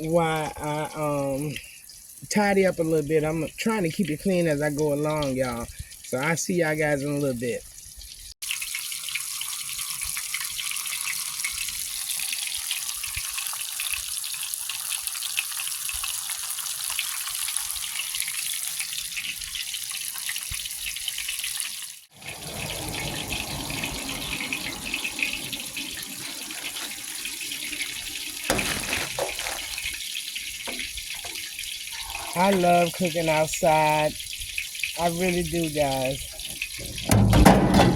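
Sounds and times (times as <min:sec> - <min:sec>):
fish sizzling in a pan: 0:07.7 - 0:36.8.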